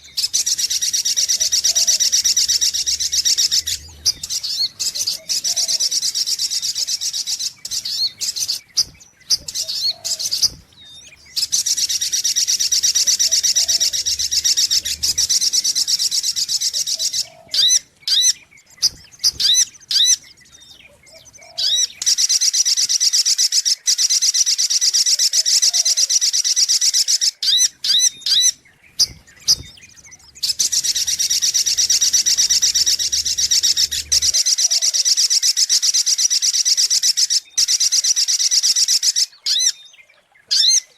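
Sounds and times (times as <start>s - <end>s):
bird rapid high trill: 30.4s - 39.2s.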